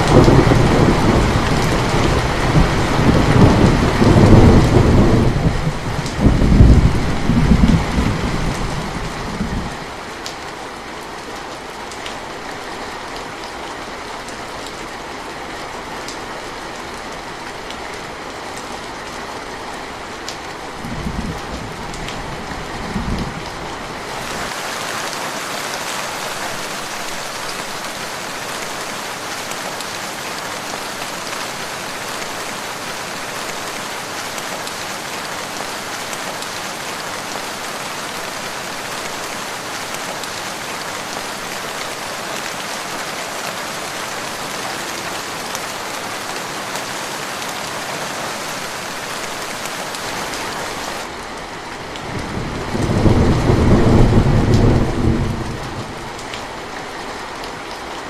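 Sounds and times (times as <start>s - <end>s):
thunder rumbling: 0.0s - 9.8s, 20.8s - 23.5s, 52.2s - 56.2s
rain falling: 0.0s - 58.0s.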